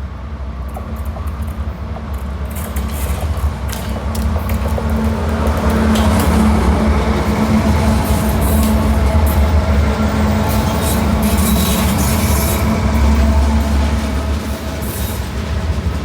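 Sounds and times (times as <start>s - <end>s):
diesel locomotive engine drone: 0.0s - 16.0s
wheels squealing on rails: 4.4s - 16.0s.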